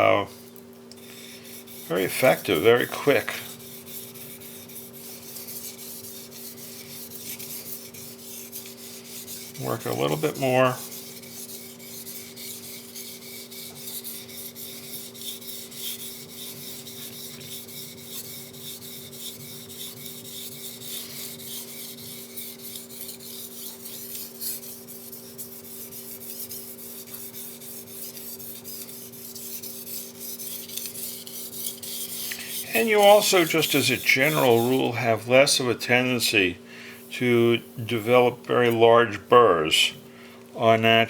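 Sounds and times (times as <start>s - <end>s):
steady low hum: 0.0s - 41.0s
knife rubbing on wet whetstone: 1.0s - 36.4s, 37.0s - 38.9s.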